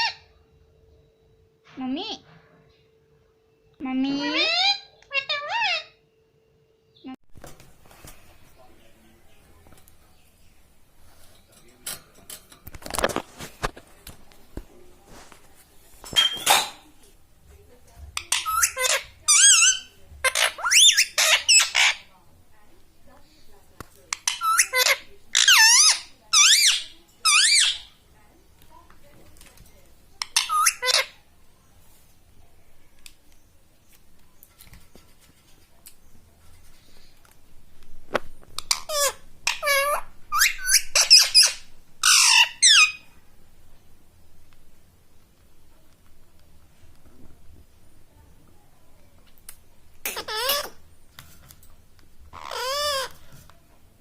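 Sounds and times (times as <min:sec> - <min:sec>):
parrot squawking: 0:04.0 - 0:06.0, 0:18.2 - 0:22.1, 0:24.1 - 0:27.9, 0:30.2 - 0:31.2, 0:38.6 - 0:43.1, 0:50.0 - 0:50.8, 0:52.3 - 0:53.2.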